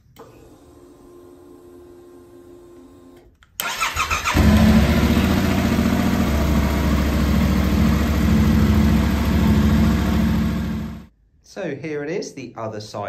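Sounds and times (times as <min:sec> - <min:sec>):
motorcycle starter cranking: 0:03.6 - 0:07.0
motorcycle engine idling: 0:04.4 - 0:11.1.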